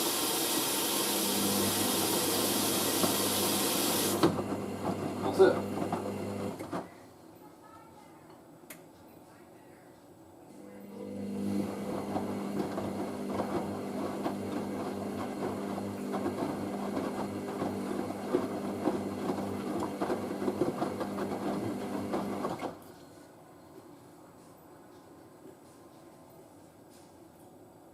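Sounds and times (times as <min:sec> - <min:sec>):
drain pump humming: 0:00.0 - 0:06.7, 0:10.9 - 0:22.7.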